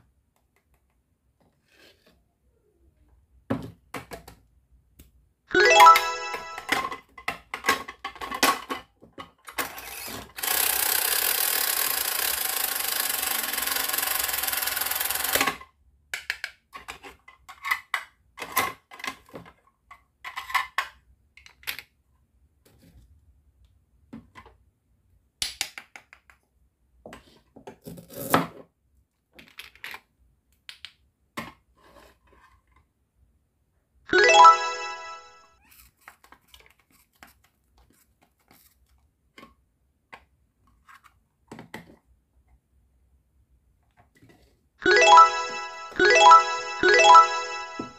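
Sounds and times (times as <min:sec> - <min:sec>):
plastic toys clicking and tapping: 0:10.4 - 0:19.5.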